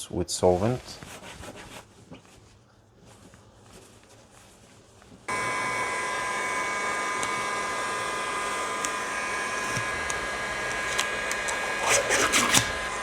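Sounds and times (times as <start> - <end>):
electric blower motor whining: 5.3 - 13.0.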